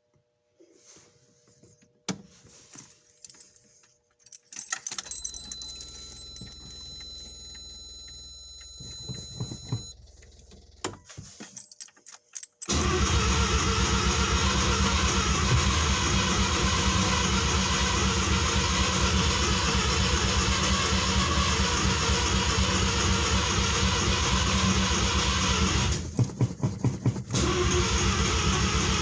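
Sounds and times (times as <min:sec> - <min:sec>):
keys jangling: 0:02.6 - 0:07.6, 0:11.2 - 0:12.8
high warning tone: 0:05.0 - 0:10.0
rotary engine cranking: 0:12.6 - 0:29.0
ignition click: 0:12.7 - 0:15.5.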